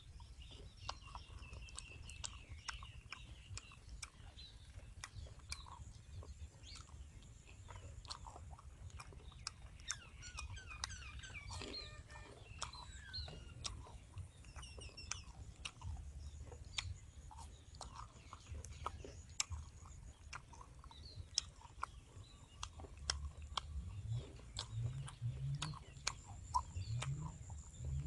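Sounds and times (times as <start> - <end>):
birds chirping: 0.0 - 28.0
crunching and chewing crispy food: 0.0 - 28.0.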